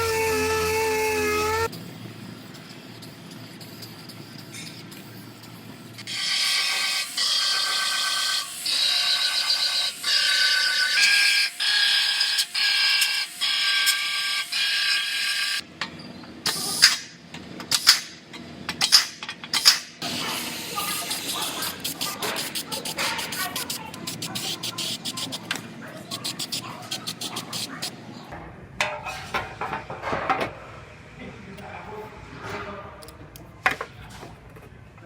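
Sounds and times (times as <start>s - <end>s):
air cutting tool buzzing through metal: 0.0s - 1.7s, 6.0s - 15.6s.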